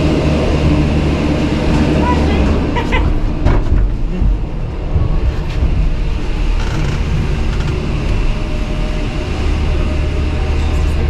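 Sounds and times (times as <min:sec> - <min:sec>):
lift machinery running: 0:00.0 - 0:11.0
short knocks of cabins: 0:01.8 - 0:06.3.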